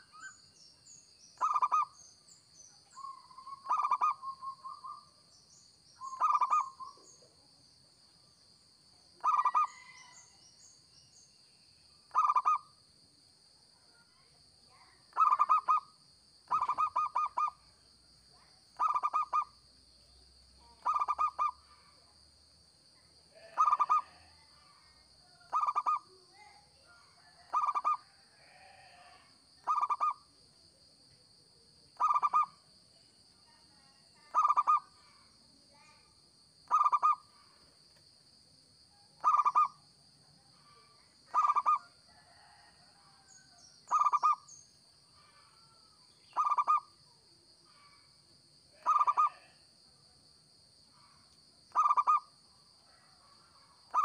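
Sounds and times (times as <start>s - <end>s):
dove cooing: 1.4s - 1.9s, 3.5s - 4.3s, 6.1s - 6.8s, 9.2s - 10.0s, 12.1s - 12.6s, 16.5s - 17.6s, 20.8s - 21.6s, 23.4s - 24.2s, 27.5s - 28.0s, 29.6s - 30.2s, 36.7s - 37.2s, 39.2s - 39.7s, 41.3s - 42.5s, 46.4s - 46.8s, 48.8s - 49.5s, 51.7s - 52.2s.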